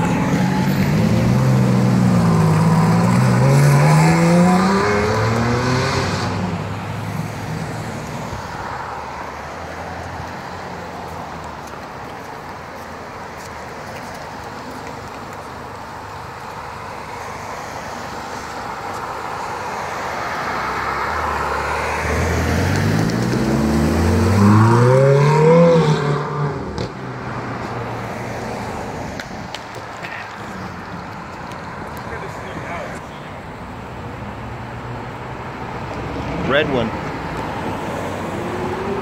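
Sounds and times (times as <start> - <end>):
sports car engine accelerating: 20.8 - 27.0.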